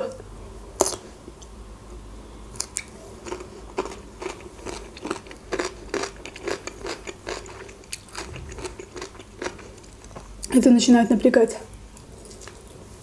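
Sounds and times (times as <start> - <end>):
mouth chewing crunchy corn: 2.6 - 10.5.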